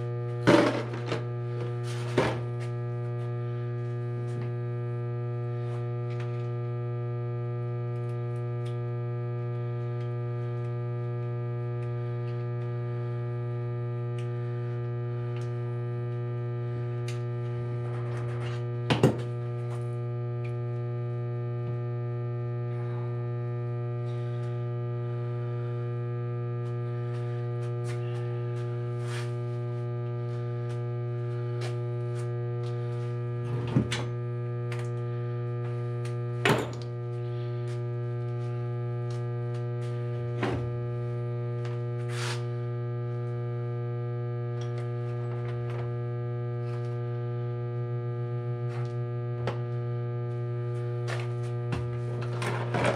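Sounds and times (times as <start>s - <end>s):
electrical mains hum: 0.0s - 52.9s.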